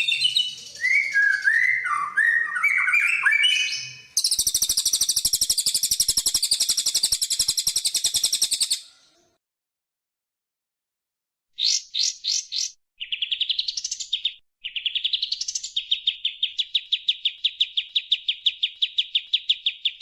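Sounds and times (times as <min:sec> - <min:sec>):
songbird whistled phrases: 0:00.0 - 0:08.9.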